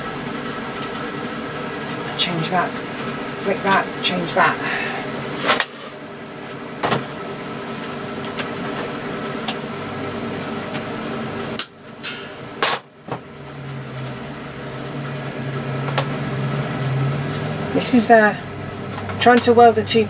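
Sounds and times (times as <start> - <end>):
welder humming and hissing: 0.0 - 12.8.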